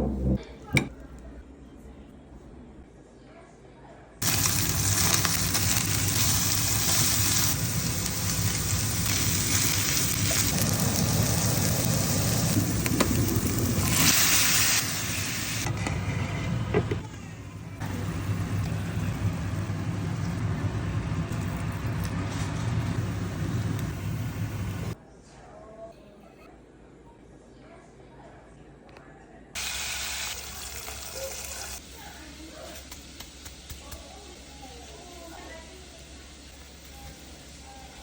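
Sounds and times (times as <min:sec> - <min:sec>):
food sizzling in a hot pan: 0:04.2 - 0:15.7, 0:29.6 - 0:38.0.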